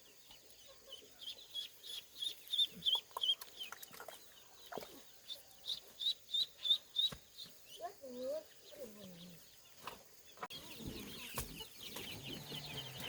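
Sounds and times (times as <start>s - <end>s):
ducklings peeping: 0.0s - 13.0s.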